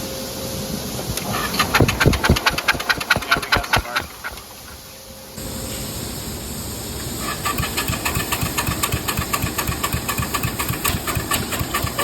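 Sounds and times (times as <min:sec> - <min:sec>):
engine chugging while cranking: 0:01.1 - 0:04.9, 0:07.2 - 0:12.0
starter motor whine: 0:07.0 - 0:12.0.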